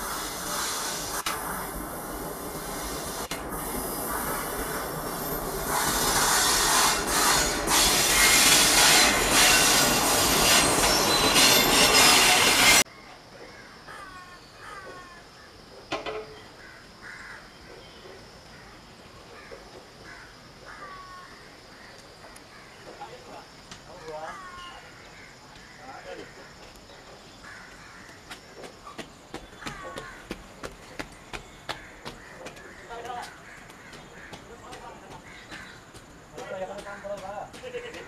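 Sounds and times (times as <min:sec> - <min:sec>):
train wheels rushing on rail: 0:00.0 - 0:12.8
birds chirping: 0:16.3 - 0:38.0.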